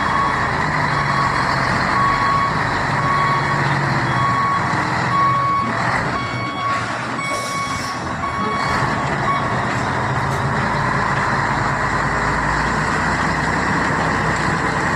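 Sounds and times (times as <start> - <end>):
reversing beeper beeps: 0.0 - 9.7
diesel truck engine running: 0.0 - 14.9.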